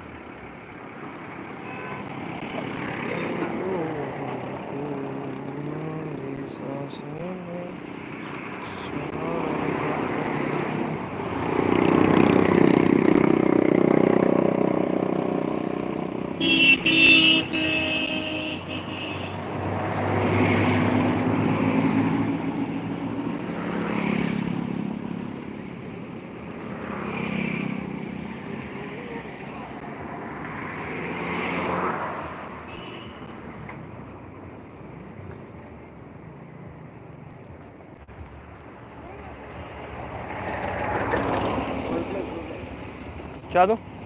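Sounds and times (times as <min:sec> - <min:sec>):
road traffic passing: 0:00.0 - 0:44.0
vehicle horn honk: 0:16.4 - 0:19.4, 0:32.7 - 0:33.2.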